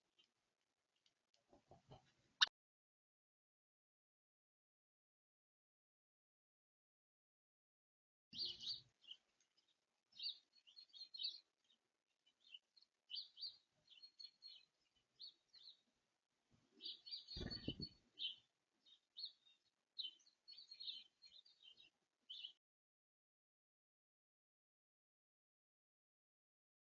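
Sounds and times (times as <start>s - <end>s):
songbirds chirping: 0.0s - 2.5s, 8.3s - 22.6s
low thump: 17.4s - 17.9s.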